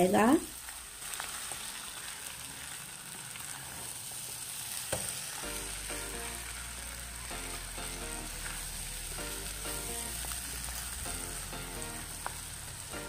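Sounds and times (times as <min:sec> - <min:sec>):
meat sizzling in a pan: 0:00.0 - 0:13.0
spatula tap: 0:04.9 - 0:05.1
soft background music: 0:05.4 - 0:13.0.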